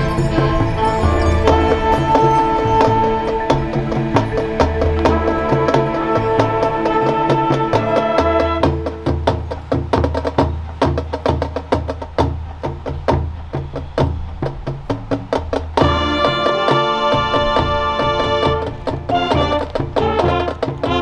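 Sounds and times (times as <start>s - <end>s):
sharp percussion hits: 0.0s - 13.0s
marching band playing: 0.0s - 21.0s.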